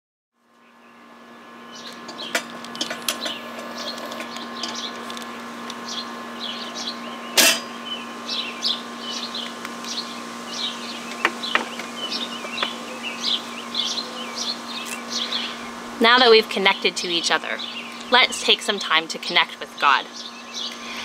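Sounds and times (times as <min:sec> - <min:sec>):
steady low hum: 0:00.4 - 0:21.0
songbird chirping: 0:05.8 - 0:20.9.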